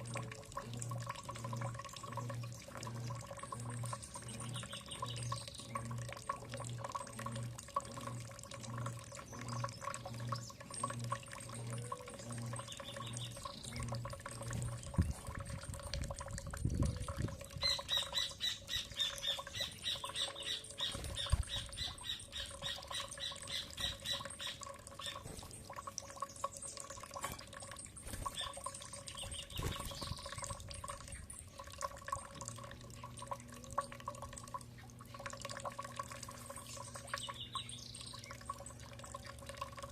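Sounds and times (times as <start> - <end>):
birds calling and chattering: 0.0 - 15.9, 16.6 - 33.9, 34.6 - 39.7
small clicks and drips: 0.0 - 39.9
steady hum: 0.0 - 39.9.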